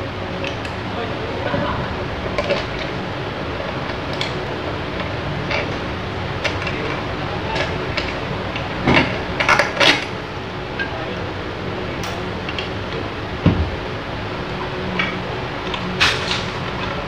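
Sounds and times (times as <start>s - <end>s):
steady background hum: 0.0s - 17.0s
loud metal clanks: 15.0s - 17.0s.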